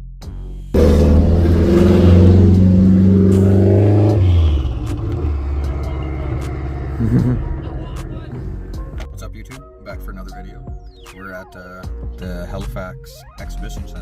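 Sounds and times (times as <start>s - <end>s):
car engine at high revs: 0.8s - 9.1s.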